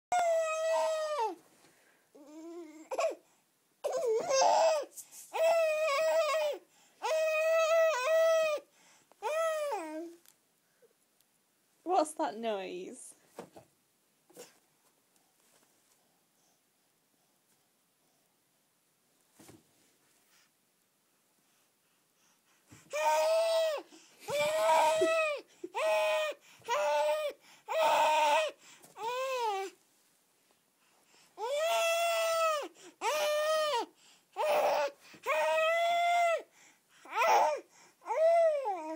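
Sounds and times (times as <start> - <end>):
baby wailing: 0.1 - 1.4, 3.8 - 8.6, 9.2 - 10.2, 22.9 - 29.8, 31.4 - 36.5, 37.1 - 38.9.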